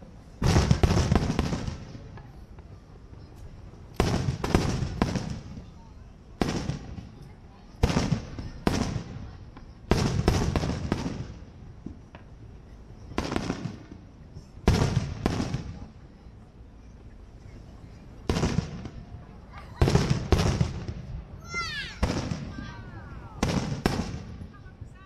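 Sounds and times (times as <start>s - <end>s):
fireworks bursting with echo: 0.3s - 16.1s, 18.2s - 25.0s.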